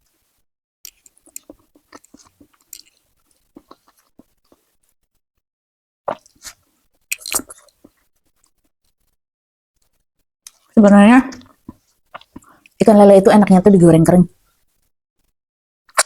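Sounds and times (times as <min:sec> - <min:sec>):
person chewing with wet clicks: 0:00.9 - 0:03.0, 0:03.6 - 0:04.2, 0:06.1 - 0:07.9, 0:11.4 - 0:12.8.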